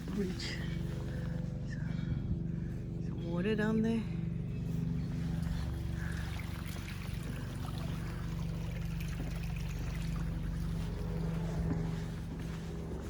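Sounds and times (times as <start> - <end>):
steady low hum: 0.0 - 13.0
small stream running: 5.2 - 12.0.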